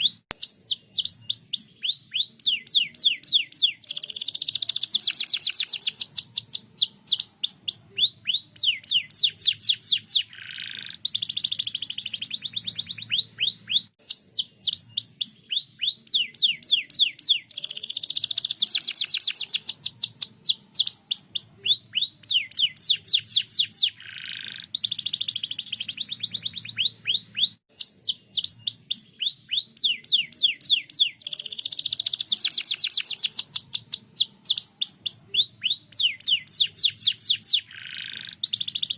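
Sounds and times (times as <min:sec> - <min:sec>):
canary singing rapid trills: 0:00.0 - 0:38.9.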